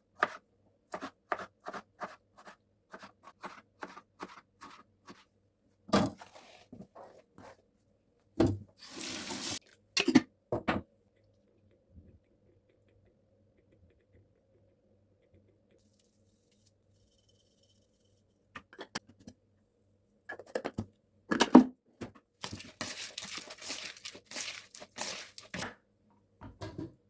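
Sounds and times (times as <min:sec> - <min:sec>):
water running from a tap: 0:08.8 - 0:09.6.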